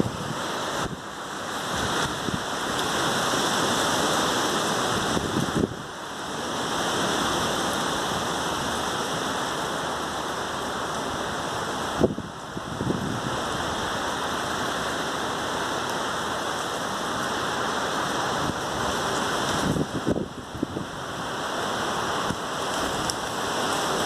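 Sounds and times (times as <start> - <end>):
strong wind rushing: 0.0 - 1.0, 4.8 - 5.9, 12.0 - 13.9, 18.3 - 21.3.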